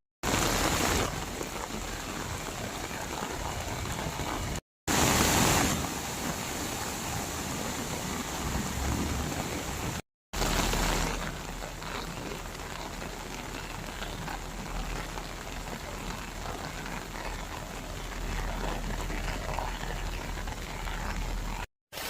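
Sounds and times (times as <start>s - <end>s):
heavy rain pouring: 0.2s - 22.0s.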